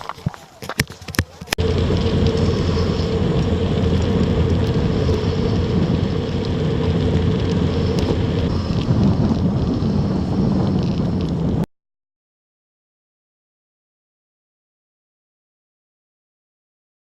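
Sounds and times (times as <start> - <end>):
vehicle engine humming: 1.5 - 11.2.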